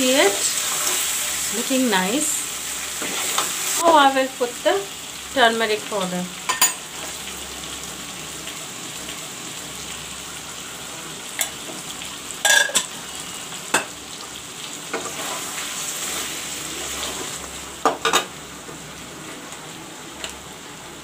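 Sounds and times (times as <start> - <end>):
food sizzling in oil: 0.0 - 21.0
metal utensil clanking on pan: 12.4 - 12.9.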